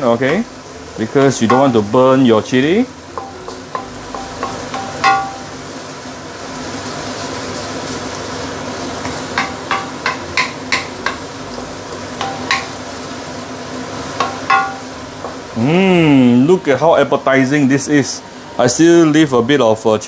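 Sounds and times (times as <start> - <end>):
paste sizzling in oil: 0.0 - 17.0
spatula knocking against wok: 3.1 - 5.5, 9.1 - 11.3, 12.2 - 12.8, 14.2 - 15.4.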